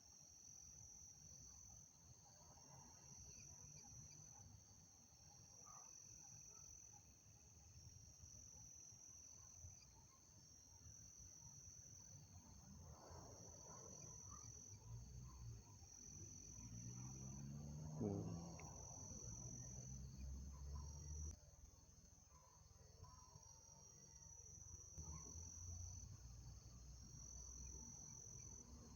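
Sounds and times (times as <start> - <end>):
crickets trilling: 7.7 - 28.9.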